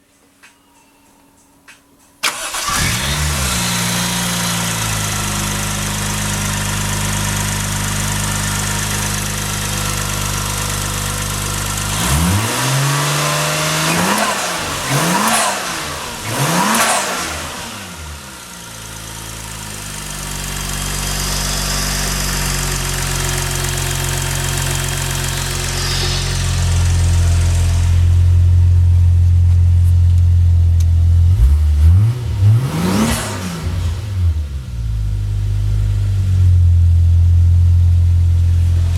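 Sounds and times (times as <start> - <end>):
car engine idling and revving: 2.2 - 38.9.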